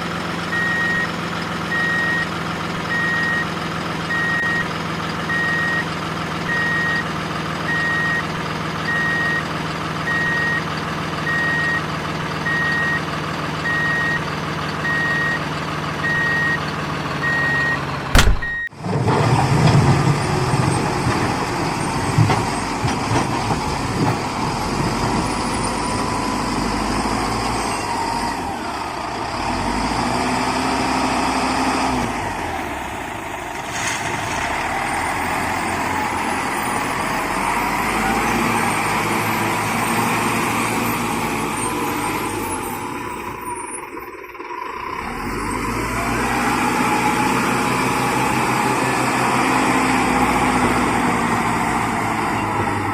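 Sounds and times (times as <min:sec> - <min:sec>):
truck engine clattering: 0:00.0 - 0:52.9
truck reversing alarm beeping: 0:00.4 - 0:18.8, 0:34.9 - 0:50.7.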